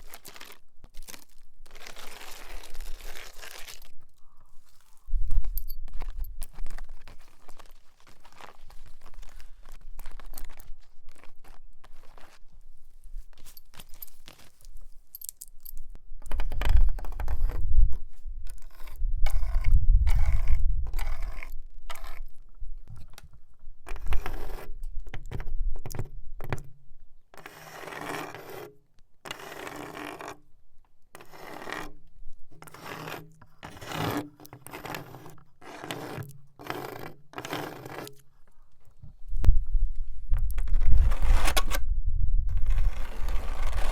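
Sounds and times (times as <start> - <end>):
nail scraping wooden wall: 18.4 - 30.5, 31.1 - 39.1.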